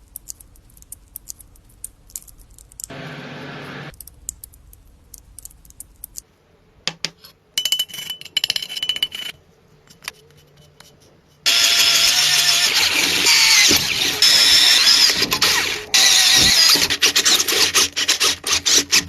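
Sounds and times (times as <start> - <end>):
power tool whining: 11.5 - 17.7.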